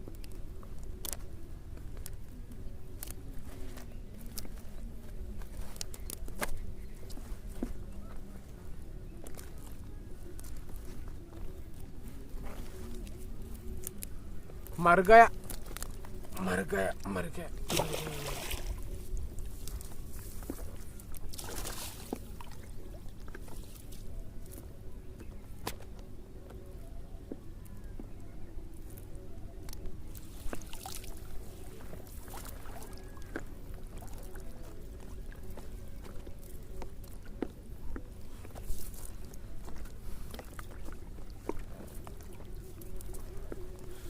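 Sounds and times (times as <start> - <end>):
fishing net rustle: 2.0 - 8.6, 17.3 - 24.7, 29.8 - 37.4, 38.2 - 44.0
water sloshing and splashing: 17.0 - 24.5, 30.1 - 44.0.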